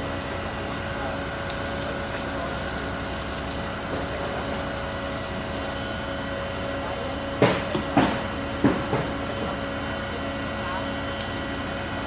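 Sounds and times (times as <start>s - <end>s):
construction machinery droning: 0.0s - 12.0s
loud knocks: 7.4s - 9.5s.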